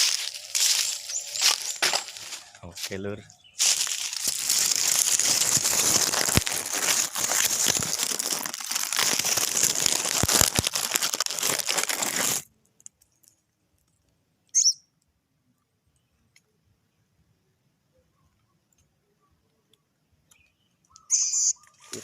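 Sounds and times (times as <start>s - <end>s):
crinkling and rustling: 0.0s - 14.0s
short high bird chirp: 0.8s - 2.1s, 14.5s - 14.9s, 20.4s - 21.8s.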